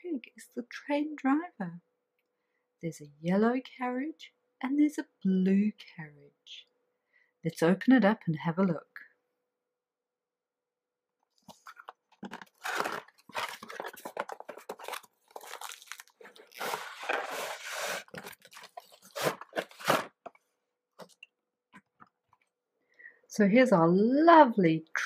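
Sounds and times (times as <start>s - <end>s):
packaging rustling and tearing: 11.4s - 20.3s.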